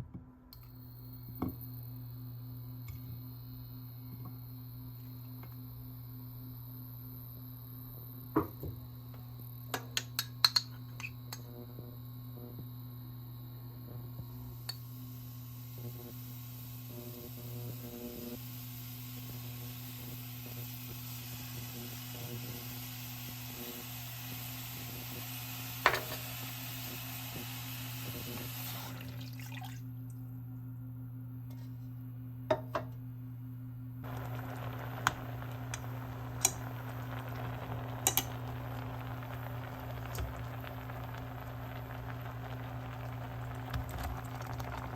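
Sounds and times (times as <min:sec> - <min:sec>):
low hum: 0:29.9 - 0:44.9.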